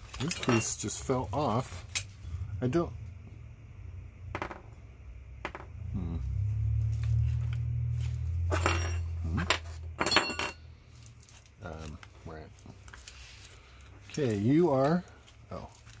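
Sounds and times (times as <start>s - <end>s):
small metal parts clattering: 0.0s - 1.1s, 8.5s - 11.3s
low steady rumble: 0.0s - 16.0s.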